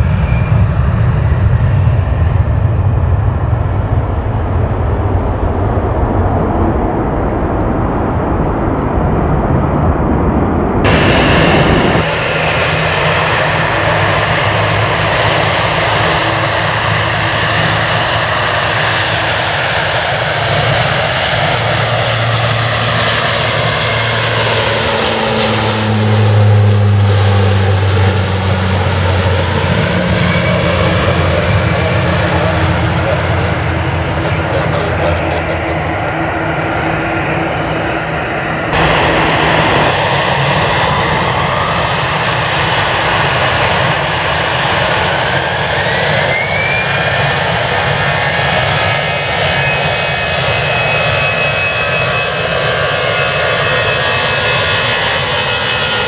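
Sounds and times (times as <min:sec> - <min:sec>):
jet engines roaring: 0:00.0 - 0:56.0
falling and rising tone: 0:01.9 - 0:12.0, 0:38.4 - 0:41.9.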